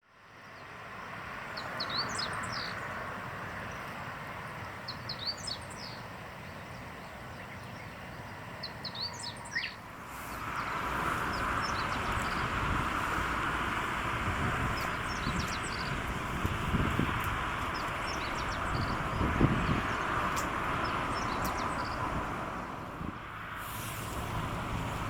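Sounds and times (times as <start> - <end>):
songbird singing: 0.4 - 22.8
wind noise: 10.1 - 25.0.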